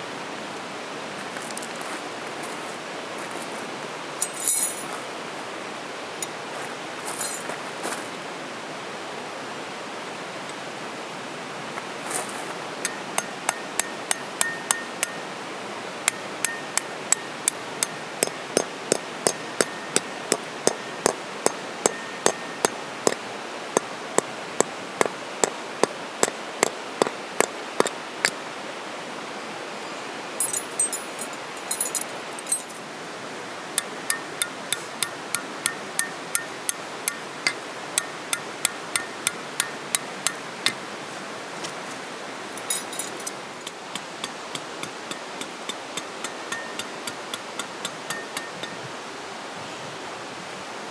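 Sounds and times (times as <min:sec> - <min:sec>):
metal pieces clinking: 0:04.2 - 0:05.0, 0:07.1 - 0:07.6, 0:30.4 - 0:32.9, 0:42.6 - 0:43.4
hammer striking metal tent pegs: 0:12.8 - 0:15.2, 0:42.6 - 0:48.8.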